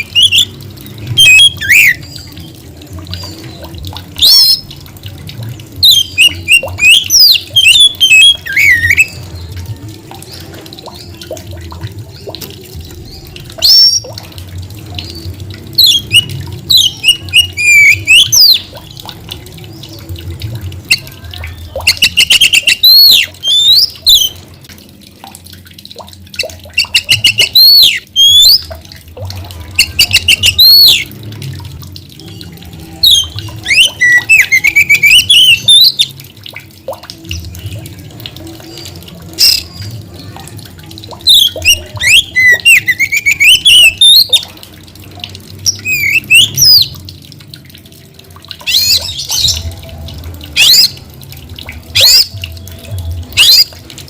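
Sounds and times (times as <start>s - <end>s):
bird singing whistled notes: 5.8s - 9.1s, 33.0s - 36.1s, 41.3s - 44.4s.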